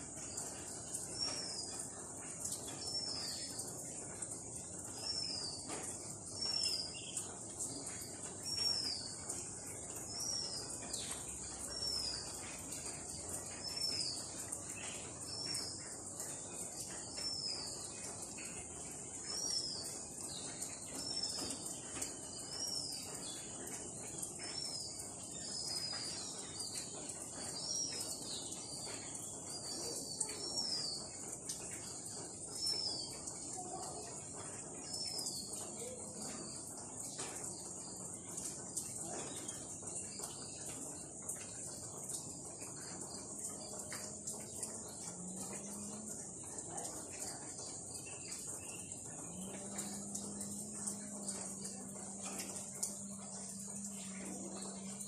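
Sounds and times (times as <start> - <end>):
insects droning: 42.0 - 55.0.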